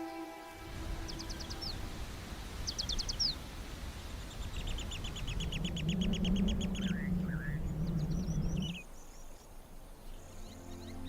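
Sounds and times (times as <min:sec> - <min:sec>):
bird calling: 0:00.0 - 0:03.5, 0:04.1 - 0:08.9
low outdoor rumble: 0:00.6 - 0:08.9.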